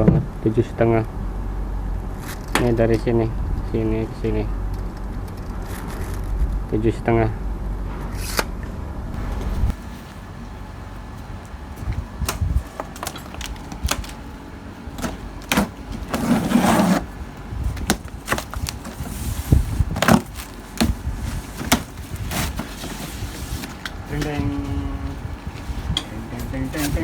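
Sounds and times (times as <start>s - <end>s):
scraping rustle: 9.2s - 27.0s.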